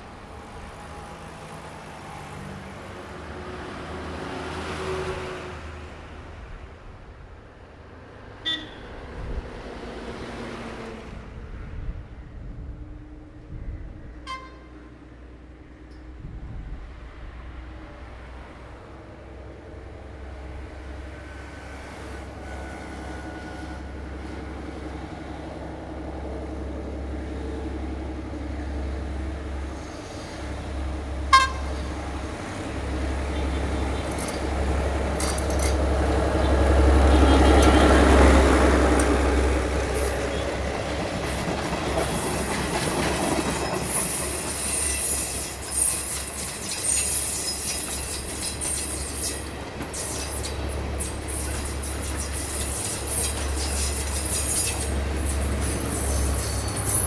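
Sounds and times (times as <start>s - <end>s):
diesel train engine hum: 0.0s - 57.0s
train wheel squeals: 21.2s - 24.4s, 29.6s - 32.1s, 33.3s - 57.0s
rail clicks: 29.6s - 57.0s.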